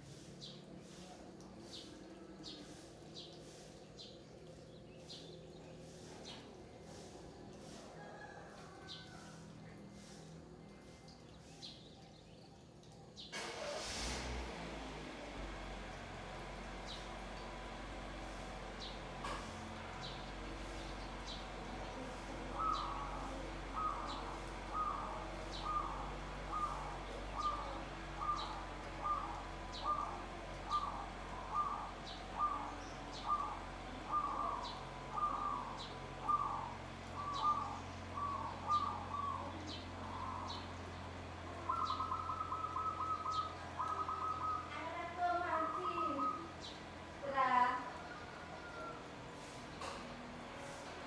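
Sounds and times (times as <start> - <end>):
doves cooing: 15.6 - 51.0.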